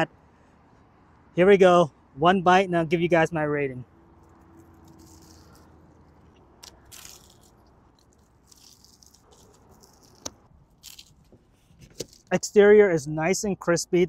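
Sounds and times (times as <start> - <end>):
crunching fried chicken: 4.2 - 12.3.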